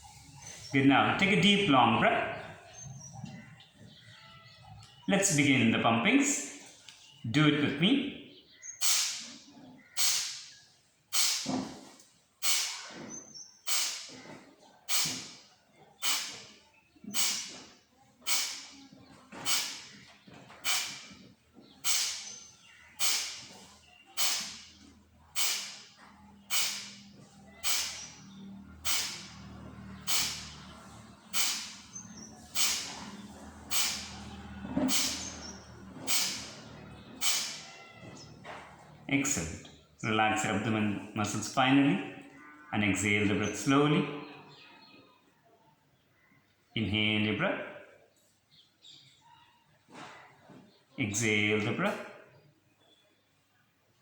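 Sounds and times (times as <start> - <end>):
forceful exhalations through nose: 8.8 - 9.4, 10.0 - 14.2, 14.9 - 18.8, 19.4 - 27.0, 27.6 - 34.2, 34.8 - 35.4, 36.0 - 36.6, 37.2 - 37.7.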